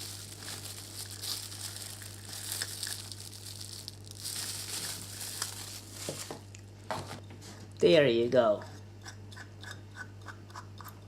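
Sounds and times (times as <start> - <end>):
packaging crinkling and rustling: 0.0 - 7.2
steady low hum: 0.0 - 11.0.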